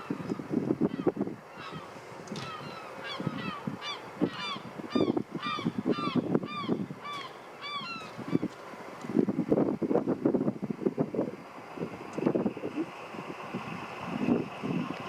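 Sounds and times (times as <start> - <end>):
gulls calling: 0.0 - 8.6.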